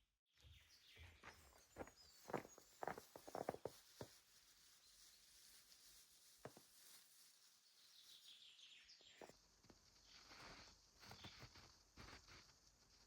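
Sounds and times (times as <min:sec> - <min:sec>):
footsteps crunching in snow: 0:01.2 - 0:08.1.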